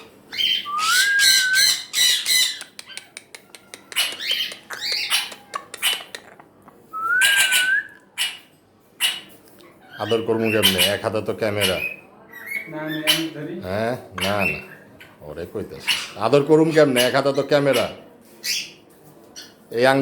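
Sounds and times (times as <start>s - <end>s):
parrot harsh squawks: 0.3s - 3.0s, 3.9s - 6.2s, 7.1s - 13.4s, 15.8s - 18.7s
parrot rising whistle: 0.6s - 1.8s, 7.0s - 8.0s
parrot sharp clicks: 2.2s - 6.4s.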